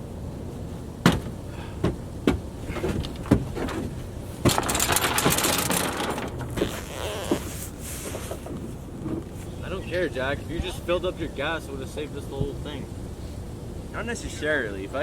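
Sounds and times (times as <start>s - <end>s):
sharp knocks and clunks: 1.0s - 7.5s.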